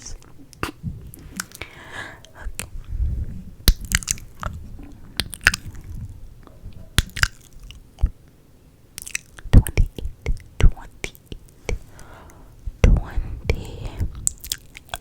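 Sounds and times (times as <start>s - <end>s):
wet mouth clicks and smacks: 0.6s - 2.7s, 3.7s - 4.6s, 5.2s - 5.9s, 7.0s - 8.2s, 9.0s - 11.9s, 12.8s - 15.0s.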